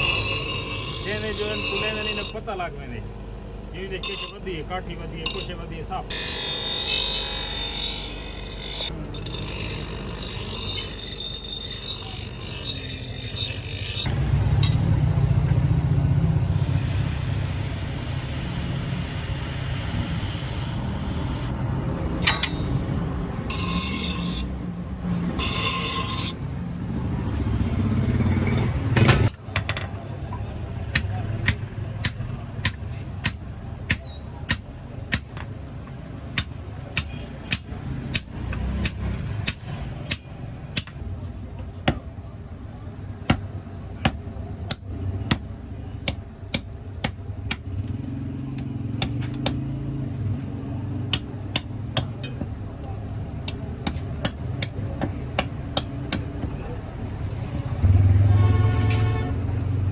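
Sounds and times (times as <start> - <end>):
rasping on metal: 0.0 - 2.4, 6.1 - 14.1, 23.5 - 24.5, 25.4 - 26.4.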